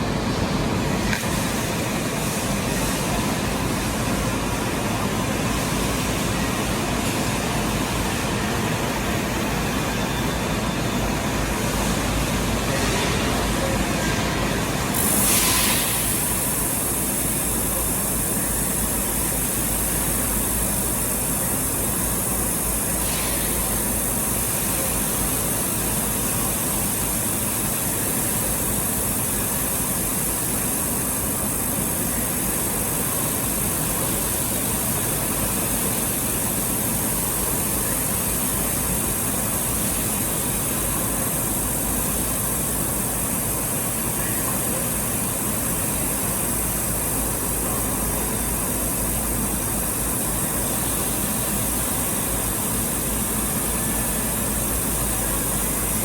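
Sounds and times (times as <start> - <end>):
high-pitched hiss: 14.9 - 56.0.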